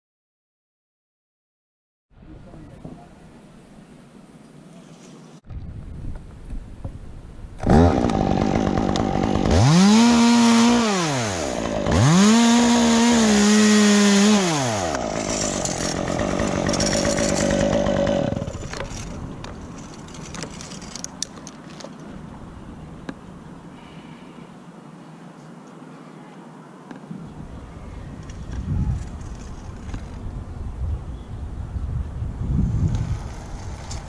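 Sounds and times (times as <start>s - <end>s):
chainsaw revving: 7.6s - 19.2s.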